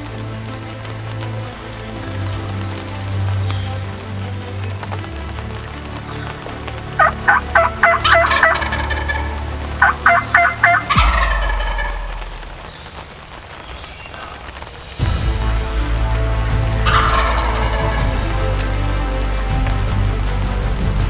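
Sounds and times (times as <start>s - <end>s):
wild turkey gobbling: 6.1s - 14.4s, 16.8s - 19.1s.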